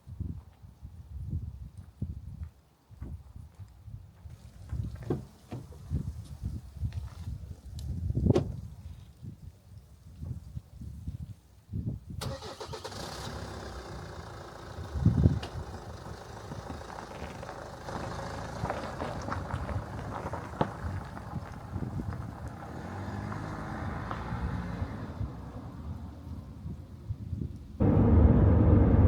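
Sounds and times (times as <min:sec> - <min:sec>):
car engine starting and running: 0:12.2 - 0:18.6, 0:27.8 - 0:29.0.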